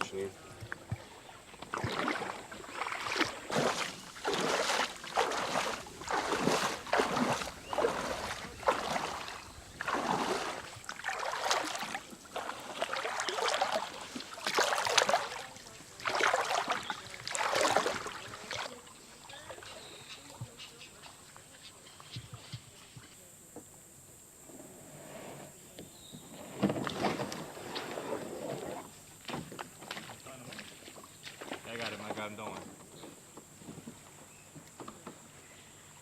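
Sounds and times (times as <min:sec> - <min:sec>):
water swishing and splashing: 0:00.0 - 0:19.7.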